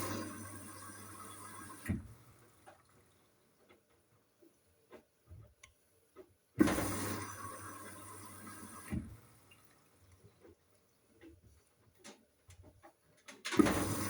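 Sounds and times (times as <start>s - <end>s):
water rushing into washing machine: 0.0s - 2.9s, 6.6s - 9.9s, 13.5s - 14.0s.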